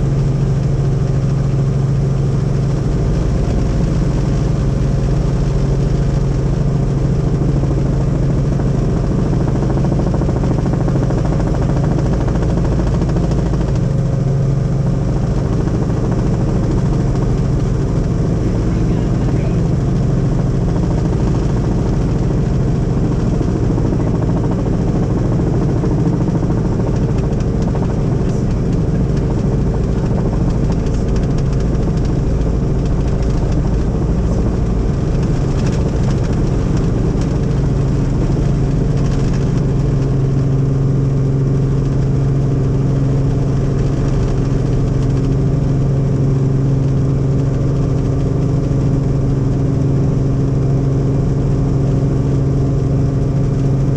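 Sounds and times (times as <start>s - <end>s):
helicopter engine and rotor noise: 0.0s - 53.9s.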